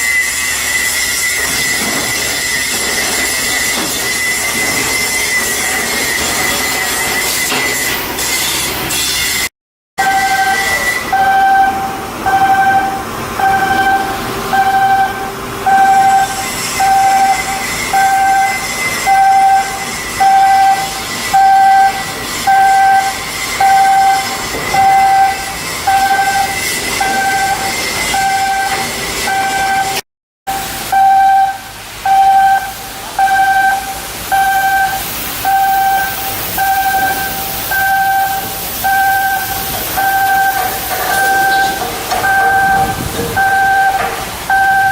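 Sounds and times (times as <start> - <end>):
steady machinery noise: 0.0 - 44.9
electronic warning beeper: 10.0 - 44.9.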